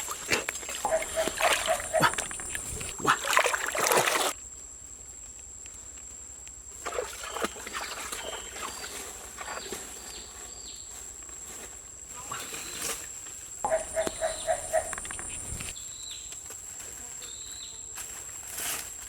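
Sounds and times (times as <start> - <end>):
water splashing and sloshing: 0.0 - 4.4, 6.8 - 9.9, 13.7 - 15.7.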